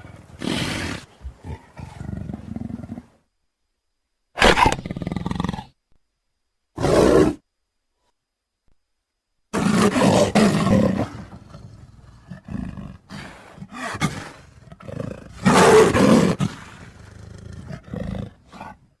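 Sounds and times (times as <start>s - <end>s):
big cat roaring: 9.6s - 18.8s.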